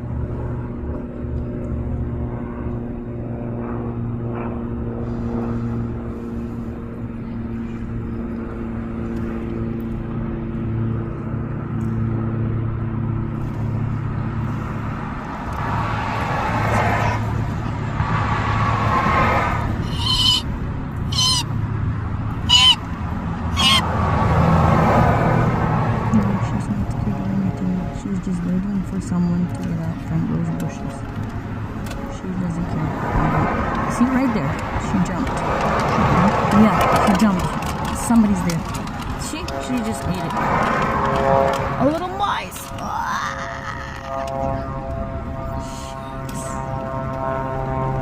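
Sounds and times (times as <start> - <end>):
vehicle engine idling: 19.6 - 24.4, 25.5 - 47.4
wavering high-pitched sounds: 19.8 - 20.5, 21.1 - 21.5, 22.5 - 22.8, 23.5 - 23.9.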